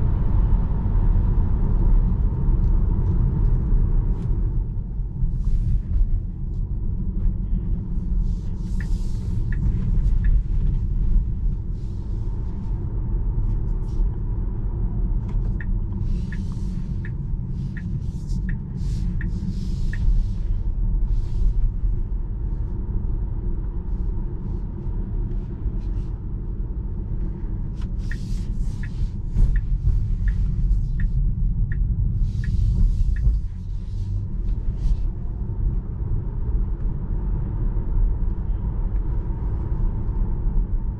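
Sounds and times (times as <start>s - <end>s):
road and tyre rumble: 0.0s - 40.9s
faint ticks: 8.8s - 10.4s, 15.4s - 20.2s, 27.8s - 34.7s.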